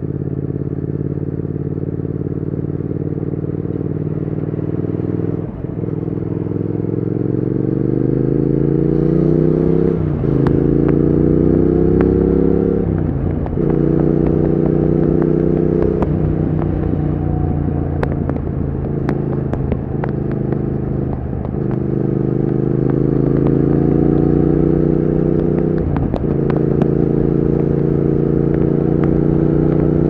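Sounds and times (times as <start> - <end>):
motorcycle engine accelerating: 0.0 - 30.0
sharp exhaust cracks: 8.7 - 30.0.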